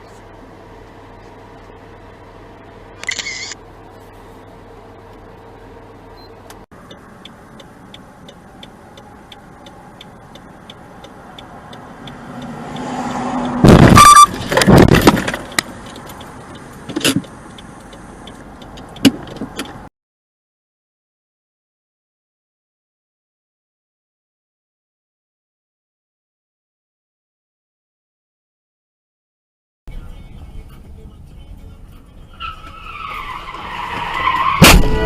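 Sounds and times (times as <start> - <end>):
steady ticking: 6.8 - 13.7, 15.4 - 19.9
vehicle approaching rush: 6.8 - 19.5
loud crunching crash impacts: 34.6 - 35.0.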